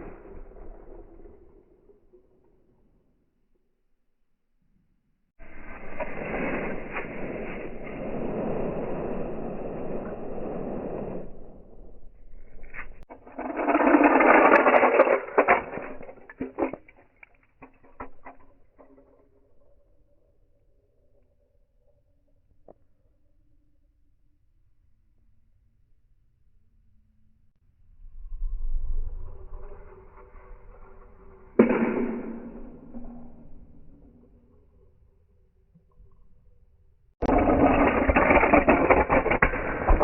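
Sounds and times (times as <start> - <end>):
toy cars crashing: 0.0 - 1.6, 13.0 - 19.6, 37.2 - 40.0.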